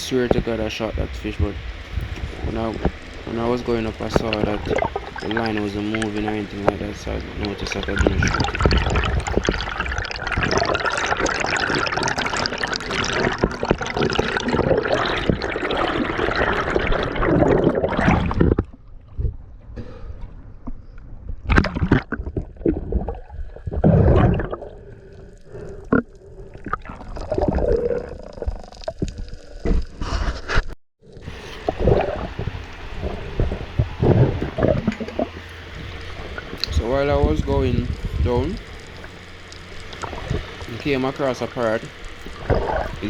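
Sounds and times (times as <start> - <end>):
short splashes: 0.0 - 17.2, 31.2 - 43.0
water rushing and gurgling: 0.0 - 18.5, 31.1 - 43.0.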